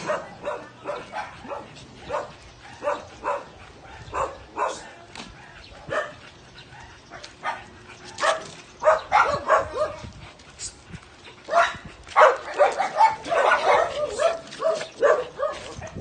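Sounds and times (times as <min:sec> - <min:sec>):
small dog barking: 0:00.0 - 0:06.2, 0:08.2 - 0:10.0, 0:11.5 - 0:16.0.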